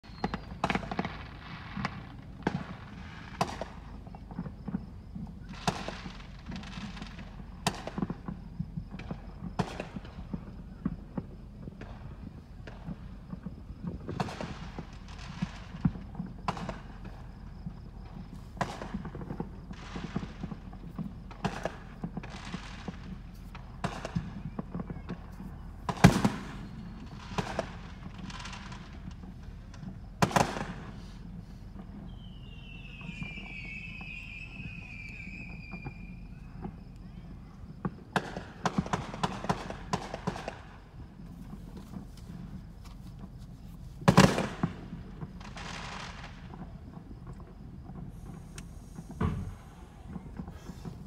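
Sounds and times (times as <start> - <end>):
fireworks bangs: 0.0 - 51.0
crackling hiss: 0.1 - 51.0.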